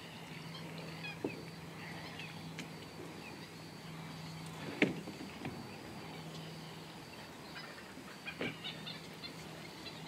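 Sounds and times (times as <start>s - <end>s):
distant birds chirping: 0.0s - 10.0s
steady low hum: 0.0s - 10.0s.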